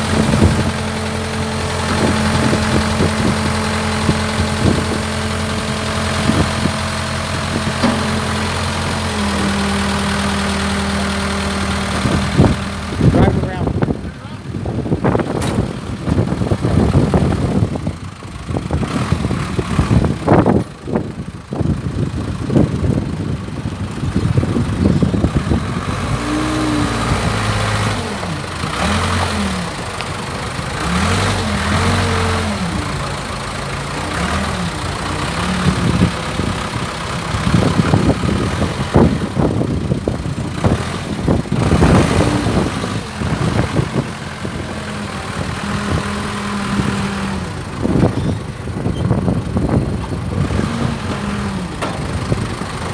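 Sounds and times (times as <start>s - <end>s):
diesel engine revving: 0.0s - 52.9s
knocks and clanks: 7.5s - 8.7s, 51.7s - 52.3s.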